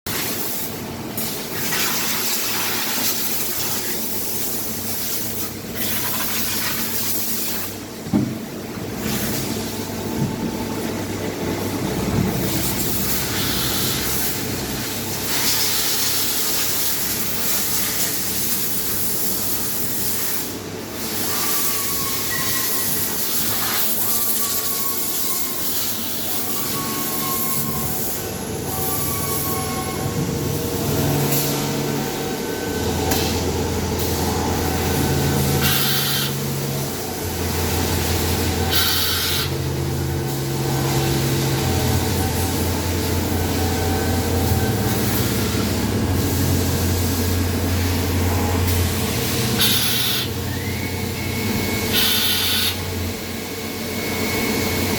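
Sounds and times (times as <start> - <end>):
cnc machine hiss and hum: 0.1 - 54.9.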